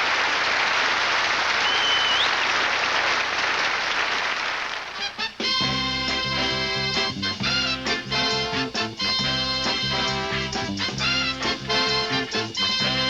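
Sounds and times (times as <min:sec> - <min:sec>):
audience applauding: 0:00.0 - 0:05.4
person whistling: 0:01.6 - 0:02.4
band playing: 0:05.0 - 0:13.0.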